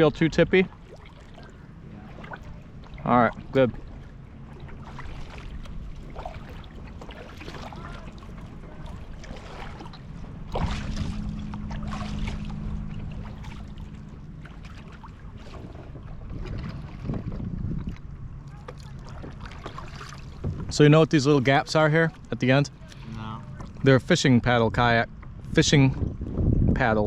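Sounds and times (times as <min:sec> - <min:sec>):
low steady hum: 0:00.0 - 0:27.0
wind rumbling on microphone: 0:00.0 - 0:27.0
water splashing and dripping: 0:04.6 - 0:20.8.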